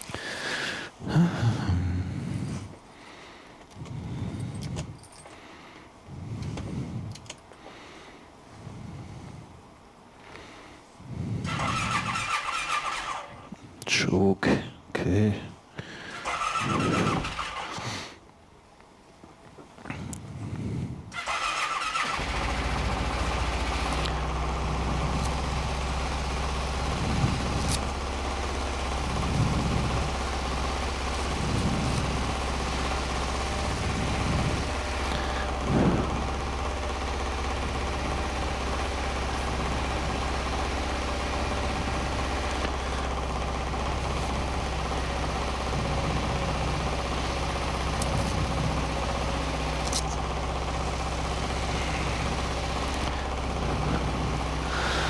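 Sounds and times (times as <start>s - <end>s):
engine throttle blips: 11.4s - 13.4s, 16.1s - 17.9s, 21.1s - 55.0s
engine starting and idling: 11.4s - 13.6s, 15.9s - 18.2s, 21.1s - 55.0s.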